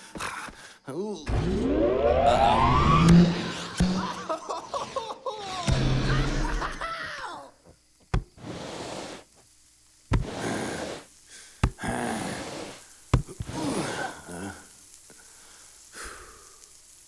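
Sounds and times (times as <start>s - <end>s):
cartoon character groaning: 4.3s - 7.5s, 13.4s - 14.7s
sharp thuds: 8.1s - 8.9s, 10.1s - 10.6s, 11.6s - 12.0s, 13.1s - 13.6s.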